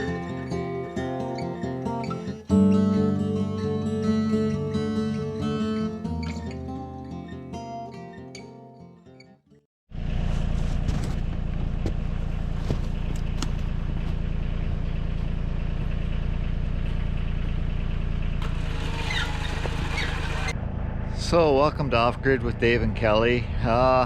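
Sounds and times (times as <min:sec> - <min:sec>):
tractor engine running: 0:09.9 - 0:23.8.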